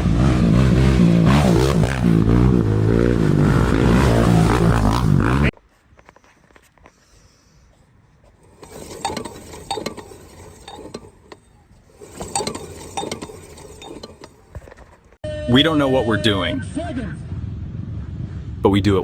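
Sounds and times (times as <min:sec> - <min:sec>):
racing engine revving: 0:00.0 - 0:05.5.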